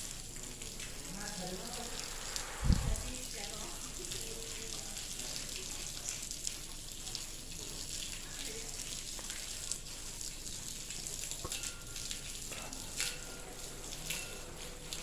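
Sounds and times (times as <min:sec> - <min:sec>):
ash rain hiss: 0:01.1 - 0:05.0.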